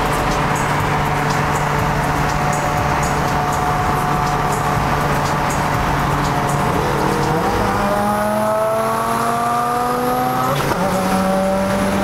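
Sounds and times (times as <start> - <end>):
rotary engine accelerating: 0.0 - 12.0.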